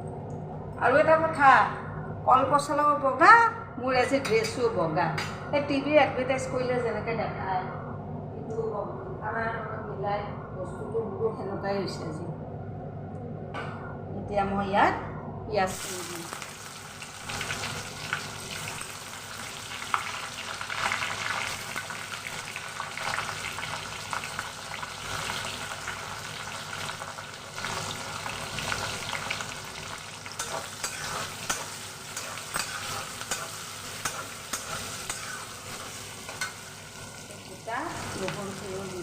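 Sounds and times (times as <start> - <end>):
onions sizzling in hot oil: 15.7 - 39.0
spatula scraping a pan: 30.3 - 37.2.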